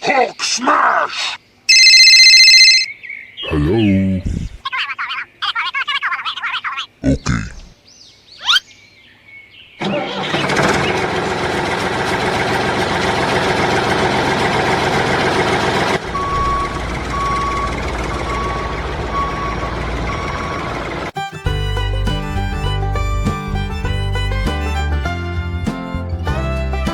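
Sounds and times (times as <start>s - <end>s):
reversing alarm beeping: 1.7s - 2.9s, 16.1s - 20.8s
vehicle engine rumbling: 9.8s - 26.9s.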